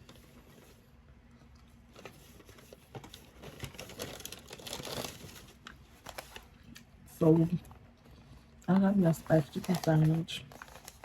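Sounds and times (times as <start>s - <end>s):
food packaging crinkling: 1.6s - 7.8s, 8.6s - 11.0s.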